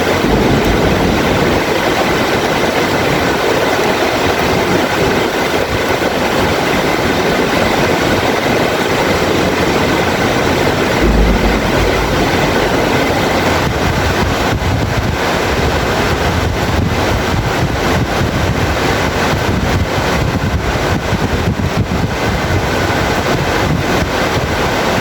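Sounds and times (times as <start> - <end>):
heavy rain falling: 0.0 - 3.2, 10.6 - 14.2
low rumble of thunder: 0.0 - 3.2, 10.5 - 15.1.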